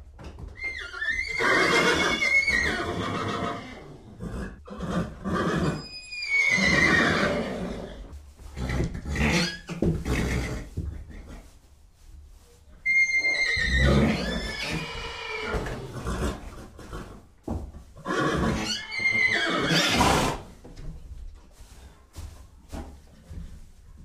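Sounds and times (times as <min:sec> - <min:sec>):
horse whinnying: 0:00.6 - 0:10.7, 0:12.8 - 0:17.2, 0:18.0 - 0:20.5
horse breathing: 0:07.4 - 0:24.0.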